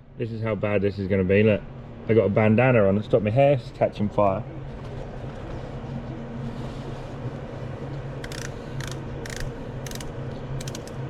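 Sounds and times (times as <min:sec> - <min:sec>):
steady mechanical hum: 0:00.0 - 0:11.0
sharp metallic clicks: 0:08.2 - 0:11.0.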